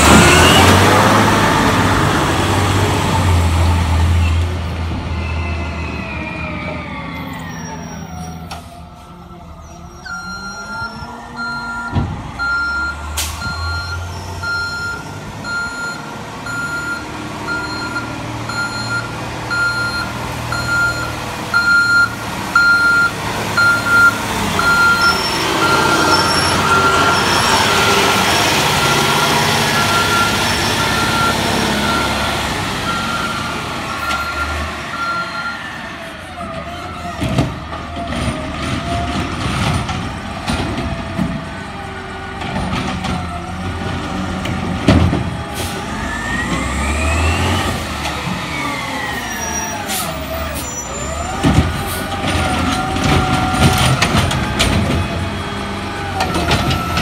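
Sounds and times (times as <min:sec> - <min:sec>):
truck engine: 0:00.0 - 0:57.0
truck backup alarm beeping: 0:07.5 - 0:36.1.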